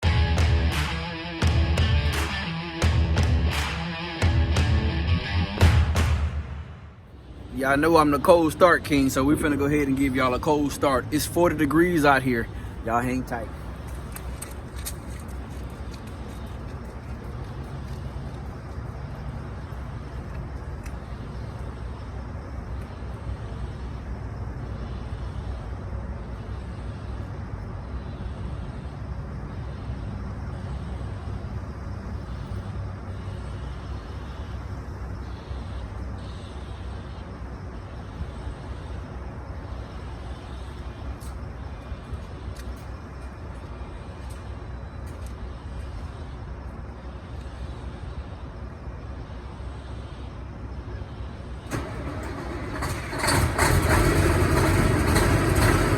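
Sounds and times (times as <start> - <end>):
diesel truck engine running: 0.0 - 21.7, 51.6 - 55.9.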